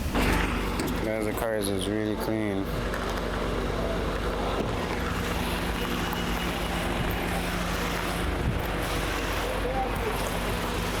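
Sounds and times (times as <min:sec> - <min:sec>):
wind noise on microphone: 0:04.7 - 0:09.3.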